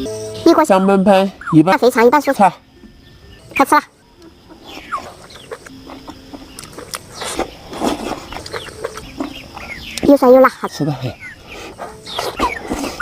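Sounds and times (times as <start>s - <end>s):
chickens clucking: 3.5s - 13.0s
person eating with clicks and slurps: 5.2s - 9.7s.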